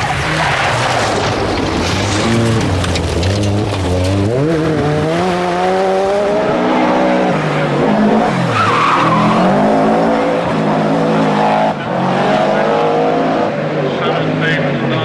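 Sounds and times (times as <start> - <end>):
tyre noise: 0.0 - 5.7
rally car engine at full load: 0.0 - 15.0.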